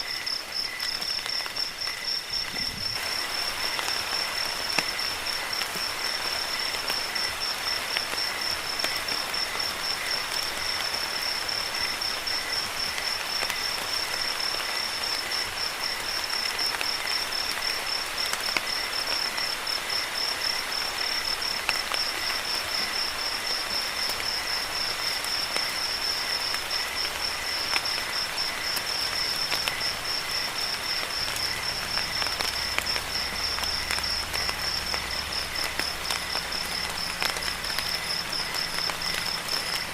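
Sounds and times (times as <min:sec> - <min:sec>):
crickets chirping: 0:00.0 - 0:39.9
steady rain: 0:00.0 - 0:39.9.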